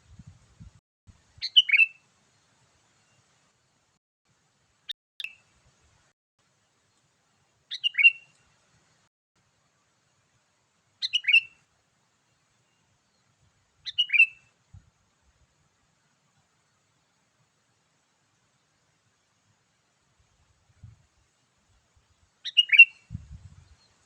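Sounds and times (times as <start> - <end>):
bulbul calls: 1.4 - 2.0, 7.7 - 8.3, 11.0 - 11.6, 13.8 - 14.5, 22.4 - 23.9.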